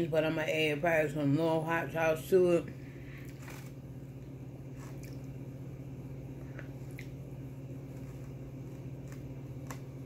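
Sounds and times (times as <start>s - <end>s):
steady low hum: 0.0s - 10.0s
person chewing food: 3.1s - 3.8s, 4.7s - 5.4s, 6.4s - 7.2s, 7.8s - 10.0s.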